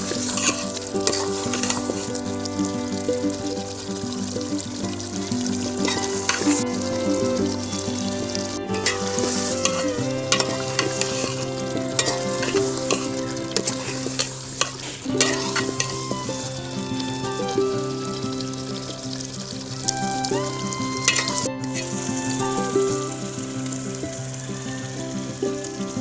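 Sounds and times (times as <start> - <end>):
background music: 0.0 - 26.0
chicken sizzling in a pan: 0.0 - 26.0
spatula tapping and scraping pan: 8.8 - 11.4.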